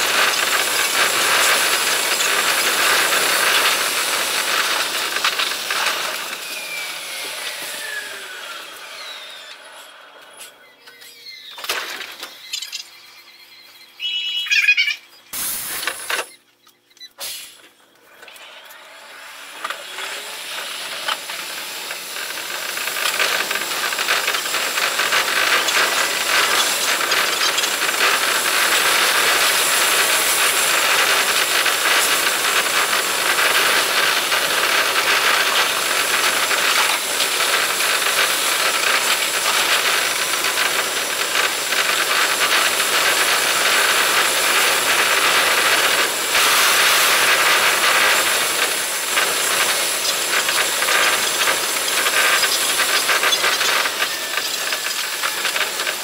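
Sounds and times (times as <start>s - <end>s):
sped-up train rattle of rapid clicks: 0.0s - 6.5s, 20.5s - 56.0s.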